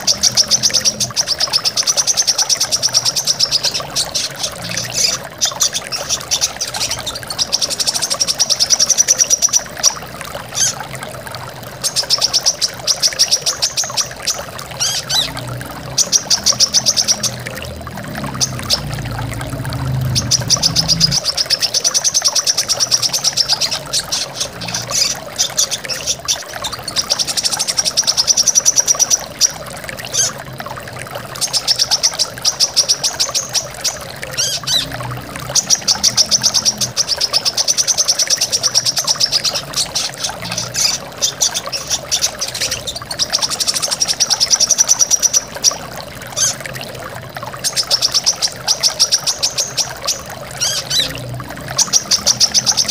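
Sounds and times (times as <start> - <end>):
bird singing rapid trills: 0.0 - 10.8, 11.8 - 30.4, 31.4 - 46.6, 47.6 - 52.9
waterfall rushing: 14.5 - 52.9.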